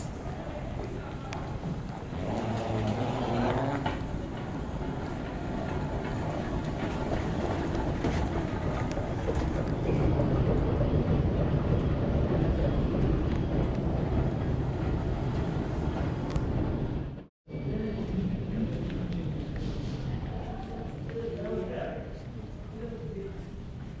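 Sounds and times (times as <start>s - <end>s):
moving vehicle rumble: 0.0s - 17.3s.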